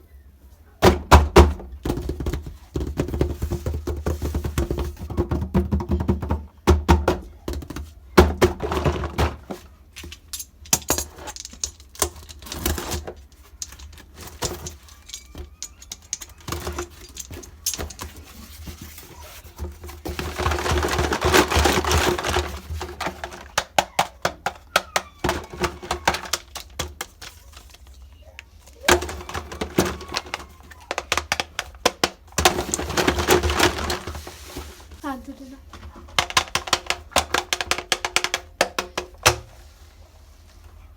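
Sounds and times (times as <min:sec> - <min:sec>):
packaging rustling: 0:08.5 - 0:35.2
plastic toy pieces clicking: 0:10.0 - 0:18.4, 0:20.0 - 0:28.0, 0:28.6 - 0:33.9, 0:35.8 - 0:39.2.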